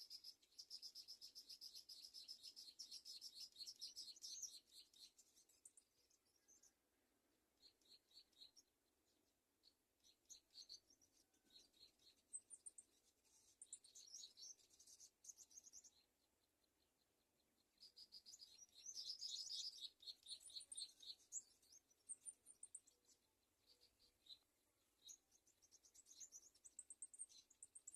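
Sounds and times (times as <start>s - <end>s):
birds chirping: 10.0s - 17.0s, 17.7s - 27.9s.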